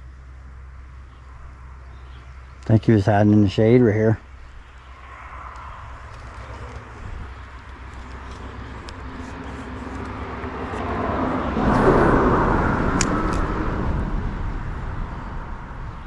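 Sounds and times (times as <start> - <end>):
vehicle passing by: 4.6 - 16.0
sharp clicks: 12.9 - 13.5.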